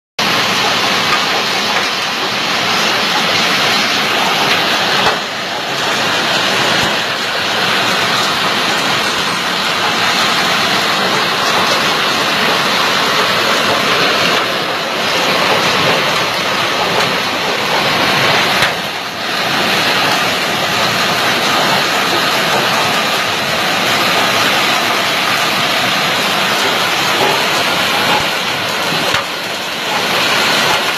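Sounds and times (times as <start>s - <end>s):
hailstones clattering: 0.2s - 30.9s.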